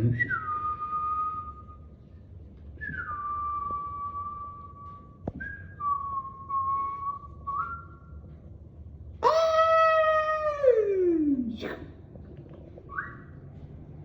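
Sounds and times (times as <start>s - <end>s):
person whistling: 0.0s - 1.8s, 2.8s - 4.8s, 5.4s - 8.0s.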